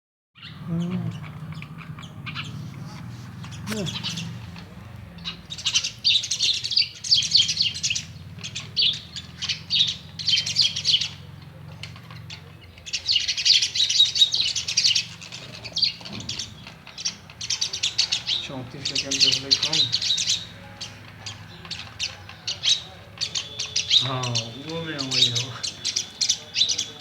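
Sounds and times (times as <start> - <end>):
myna chattering and chirping: 0.4 - 27.0.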